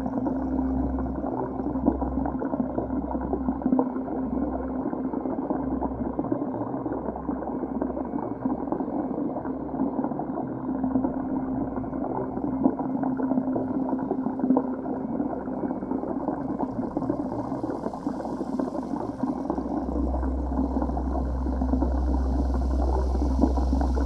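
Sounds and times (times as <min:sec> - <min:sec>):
low hum: 0:10.9 - 0:24.0
deep rumble: 0:15.3 - 0:24.0.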